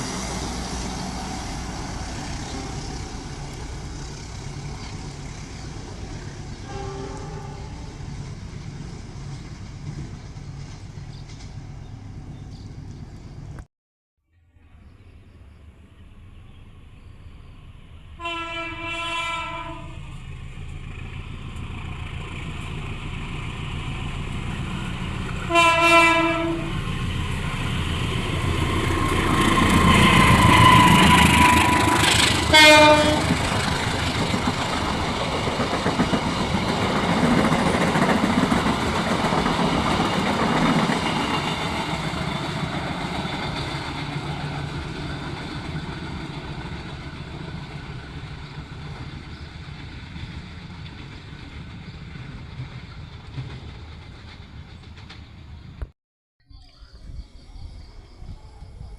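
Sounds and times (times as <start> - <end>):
train wheels rumbling and clacking: 0.0 - 13.6, 20.0 - 55.9
train horn blasts: 6.6 - 8.0, 18.2 - 20.0, 25.4 - 26.8, 30.0 - 33.4.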